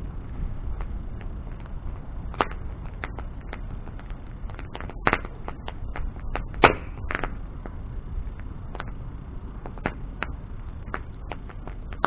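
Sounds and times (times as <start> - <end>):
bonfire crackling and popping: 0.0 - 12.0
low rumble of flames: 0.0 - 12.0.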